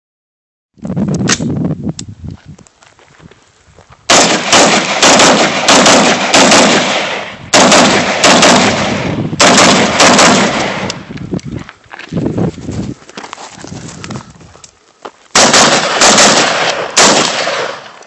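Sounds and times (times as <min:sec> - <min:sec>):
semi-automatic gunshots: 0:04.1 - 0:11.1, 0:15.4 - 0:18.0.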